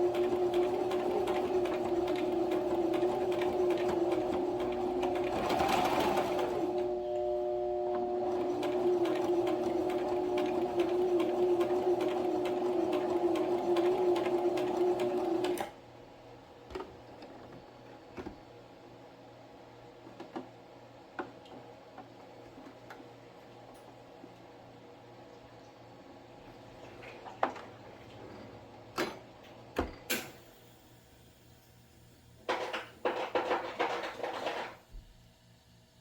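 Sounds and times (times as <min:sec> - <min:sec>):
sewing machine stitching: 0:00.0 - 0:06.9, 0:08.1 - 0:15.7, 0:32.5 - 0:34.8.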